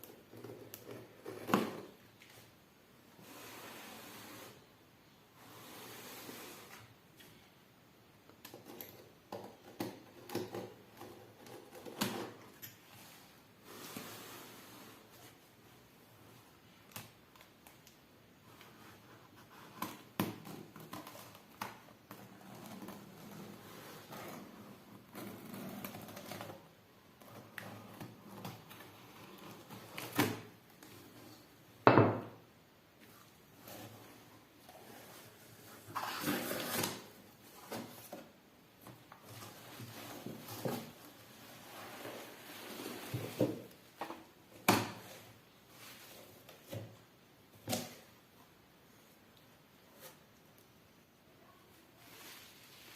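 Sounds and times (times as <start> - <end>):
soft sliding rustle: 3.2 - 4.7, 5.3 - 7.3, 12.8 - 16.4, 39.2 - 43.8, 45.6 - 46.5, 51.6 - 52.9.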